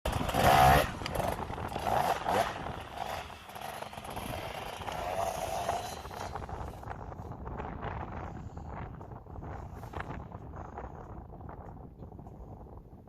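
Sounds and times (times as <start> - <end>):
dirt bike engine revving: 0.1 - 6.9.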